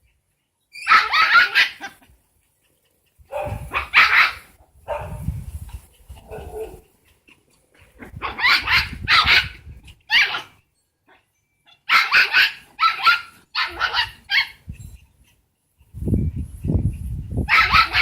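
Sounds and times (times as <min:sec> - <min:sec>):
small dog barking: 0:00.9 - 0:02.0, 0:03.3 - 0:05.3, 0:06.2 - 0:06.9, 0:08.1 - 0:10.5, 0:11.8 - 0:14.6, 0:17.5 - 0:18.0.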